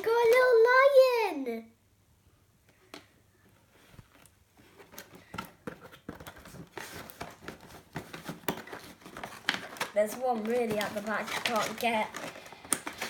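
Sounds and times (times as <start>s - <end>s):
plastic packaging clicks and rustles: 4.0s - 13.0s.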